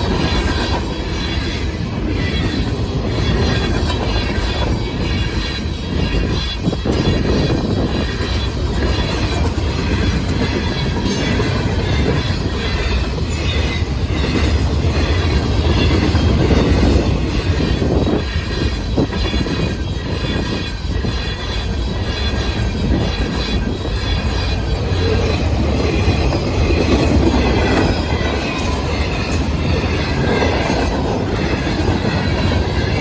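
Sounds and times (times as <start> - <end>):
high wheel squeal: 0.0 - 33.0
train wheels rumbling on rails: 0.0 - 33.0
wheels clicking over rail joints: 0.0 - 33.0.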